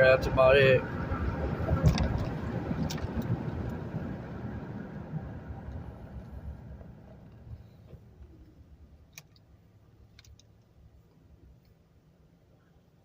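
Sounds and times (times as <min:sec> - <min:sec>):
low car rumble: 0:00.0 - 0:13.0
sharp clicks: 0:09.1 - 0:09.5.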